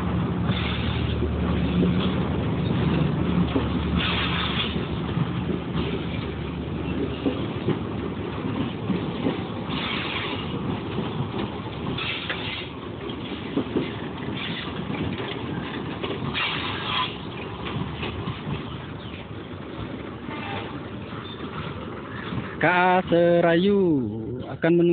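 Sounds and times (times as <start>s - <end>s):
train rumbling and clattering: 0.0s - 24.9s.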